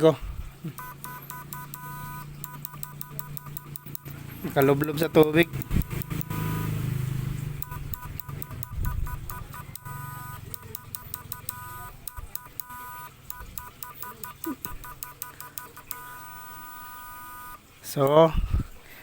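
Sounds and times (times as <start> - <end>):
clicking: 0.7 - 6.6, 7.6 - 16.2
high-pitched electronic beeps: 0.7 - 17.6.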